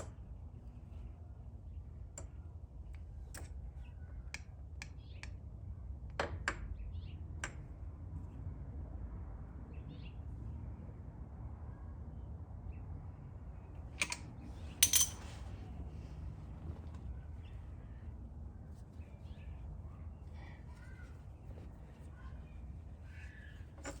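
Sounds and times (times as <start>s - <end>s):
metallic clicks of hand tools: 14.0s - 14.2s, 14.8s - 15.2s.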